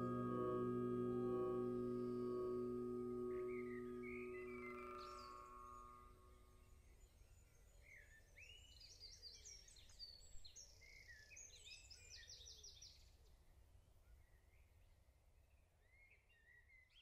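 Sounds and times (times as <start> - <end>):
songbird chirping and trilling: 0.0 - 6.1.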